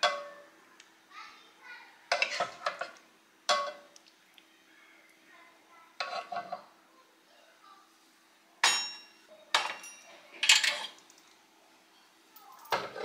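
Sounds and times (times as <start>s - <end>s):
kitchenware clinking: 0.0s - 0.5s, 2.1s - 3.9s, 6.0s - 6.7s, 8.6s - 13.0s.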